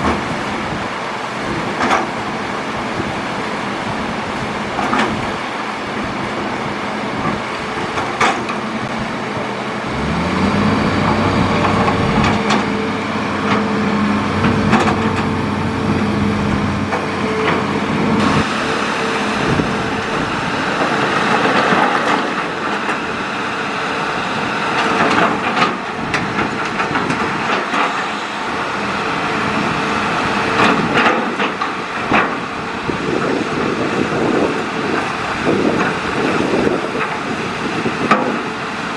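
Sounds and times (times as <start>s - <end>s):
excavator diesel engine and hydraulics: 0.0s - 38.9s
knocks and clatter: 14.4s - 15.3s.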